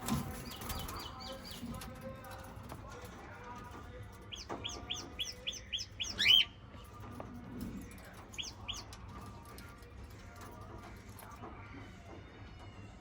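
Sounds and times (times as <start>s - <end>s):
parrot chirping: 4.3s - 6.6s.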